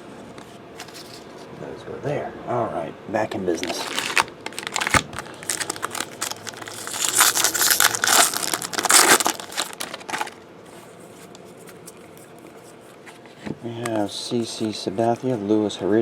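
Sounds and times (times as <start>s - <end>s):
wrapper crinkling and tearing: 3.6s - 10.4s.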